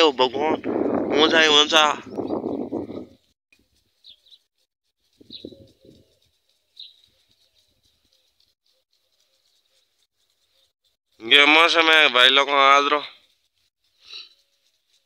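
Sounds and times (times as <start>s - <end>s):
high bird chirps: 4.0s - 4.5s, 5.2s - 8.5s.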